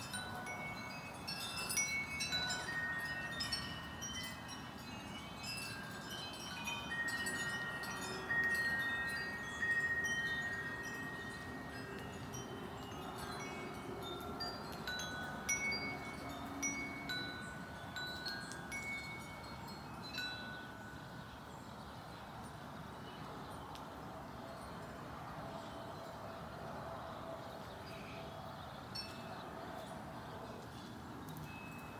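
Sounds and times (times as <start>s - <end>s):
wind chimes ringing: 0.0s - 21.5s, 31.3s - 31.9s.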